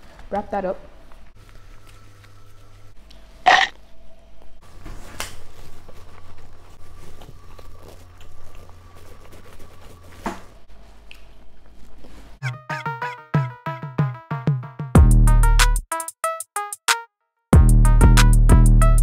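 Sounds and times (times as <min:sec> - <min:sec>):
person chewing soft food: 0:05.6 - 0:09.9.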